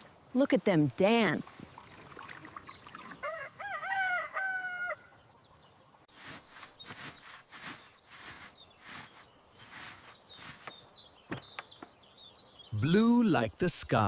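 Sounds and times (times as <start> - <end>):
rooster crowing: 3.2 - 5.2
soft scratchy rustling: 6.1 - 11.0.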